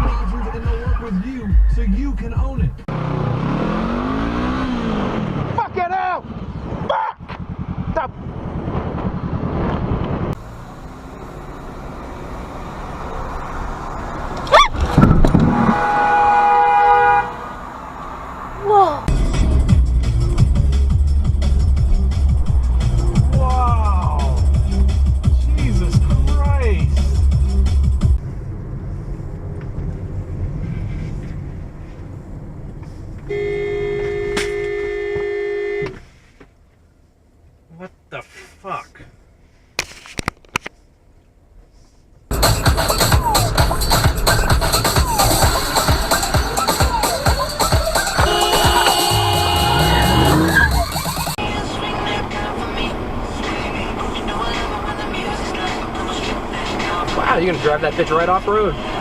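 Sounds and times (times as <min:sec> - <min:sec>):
road rumble: 0:00.0 - 0:59.0
vehicle engine: 0:00.0 - 0:59.0
car horn blaring: 0:15.4 - 0:17.8, 0:33.3 - 0:36.0, 0:45.4 - 0:51.4.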